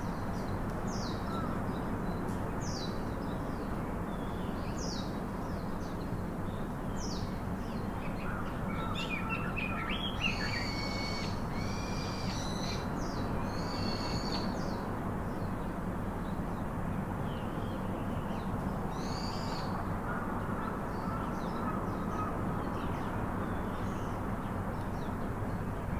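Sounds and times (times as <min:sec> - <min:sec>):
birds chirping and whistling: 0:09.0 - 0:12.8.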